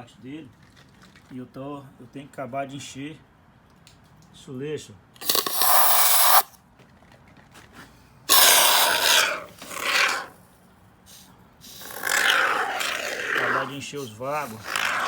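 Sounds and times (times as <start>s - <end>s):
spray foam can hissing: 5.2s - 6.5s, 8.3s - 10.3s, 11.1s - 15.0s.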